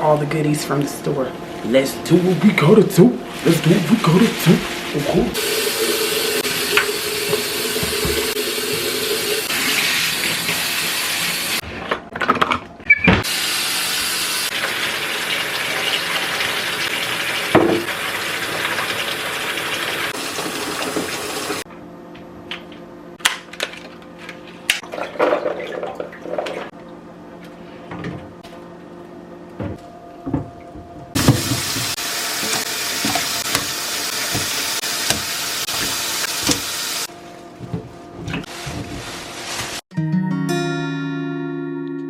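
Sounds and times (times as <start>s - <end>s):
tap running into a sink: 6.4s - 9.4s, 17.5s - 17.9s, 31.2s - 36.8s.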